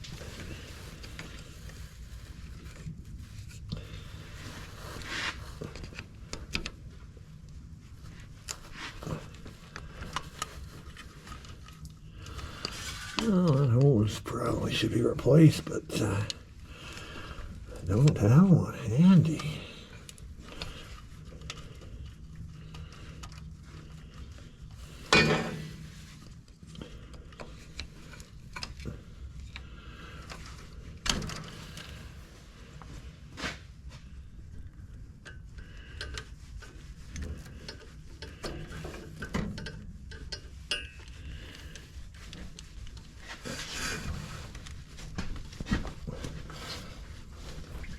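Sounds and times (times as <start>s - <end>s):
low steady hum: 0.0s - 31.1s
clicks and knocks of hand work: 35.3s - 43.8s.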